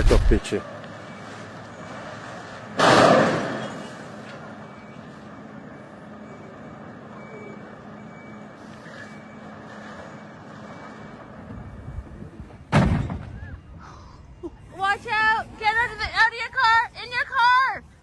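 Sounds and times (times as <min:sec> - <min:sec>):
loud sudden noise: 0:00.0 - 0:00.4
vehicles rumbling on snowy road: 0:00.0 - 0:12.7
faint high beeping tone: 0:04.6 - 0:12.3.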